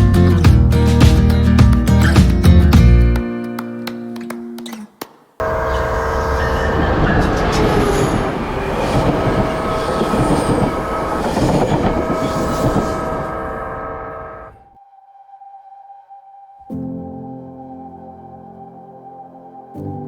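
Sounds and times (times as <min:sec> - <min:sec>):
steady held tones: 0:03.8 - 0:14.8
train rumbling past: 0:05.4 - 0:14.7.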